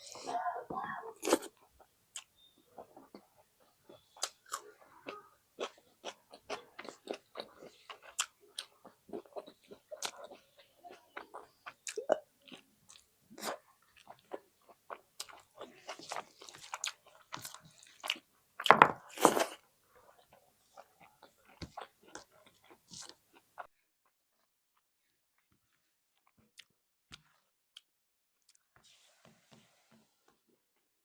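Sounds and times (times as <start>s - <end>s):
chewing and lip smacks: 1.2s - 18.3s, 19.0s - 23.7s.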